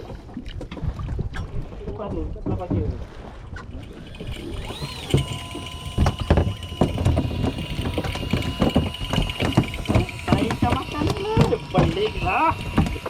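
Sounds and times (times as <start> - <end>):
fishing reel motor whining: 3.6 - 13.0
knocks and thumps: 4.7 - 13.0.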